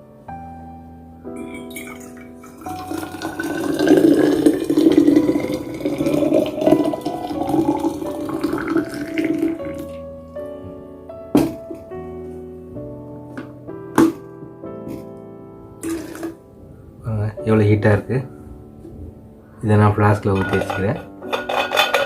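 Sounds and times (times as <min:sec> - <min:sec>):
soft piano music: 0:00.0 - 0:22.0
hot water pouring into flask: 0:01.4 - 0:10.0, 0:15.8 - 0:16.4.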